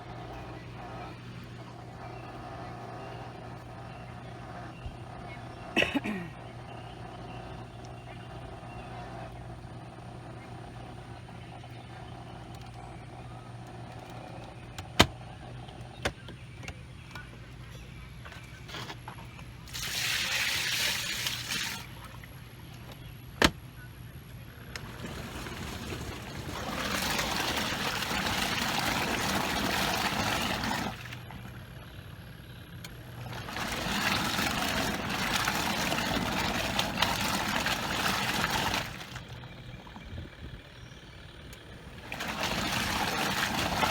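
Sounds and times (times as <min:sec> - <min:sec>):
low steady hum: 0:00.0 - 0:43.9
water pouring: 0:19.7 - 0:22.4, 0:24.8 - 0:31.6, 0:33.1 - 0:39.4, 0:42.0 - 0:43.9.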